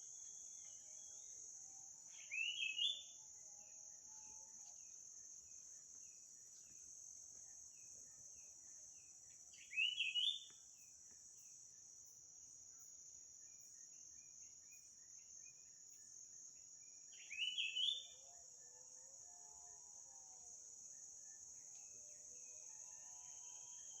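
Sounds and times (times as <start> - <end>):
insects droning: 0.0 - 24.0
faint bird chirps: 2.1 - 3.2, 7.7 - 11.5, 12.8 - 19.5.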